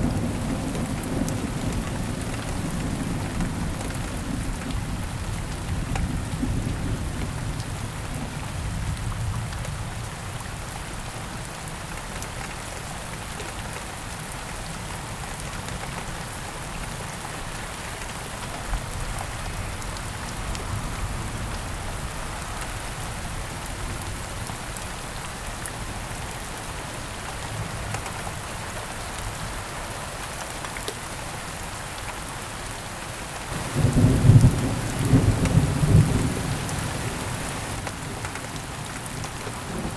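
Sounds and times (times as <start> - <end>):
steady rain falling: 0.0 - 39.9
rolling thunder: 33.5 - 37.8.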